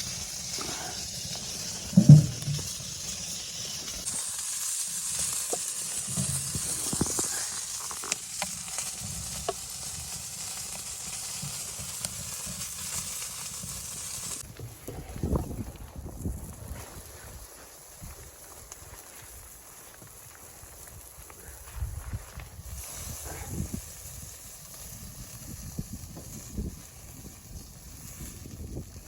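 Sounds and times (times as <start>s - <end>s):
sizzling hiss: 0.0s - 29.0s
dull thump: 1.9s - 2.6s.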